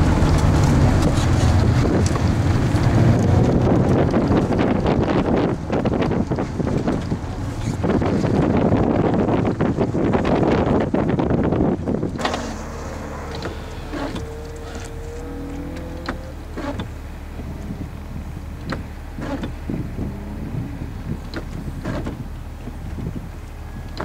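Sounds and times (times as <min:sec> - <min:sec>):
car engine idling: 0:00.0 - 0:24.0
windshield wipers swishing: 0:00.0 - 0:24.0.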